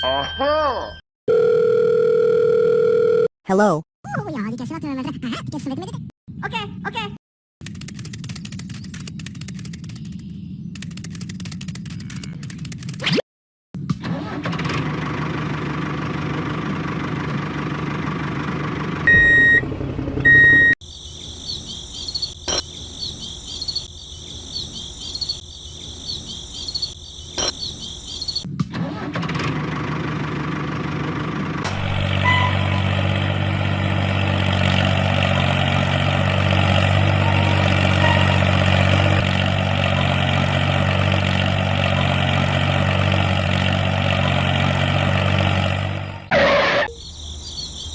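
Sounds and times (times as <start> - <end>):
sharp clicks: 7.6 - 13.2
engine running: 14.0 - 20.8, 28.8 - 46.9.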